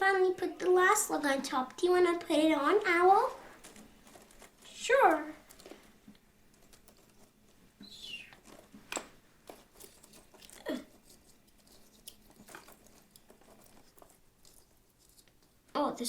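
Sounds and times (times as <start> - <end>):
toy pieces scraping: 9.5 - 15.6.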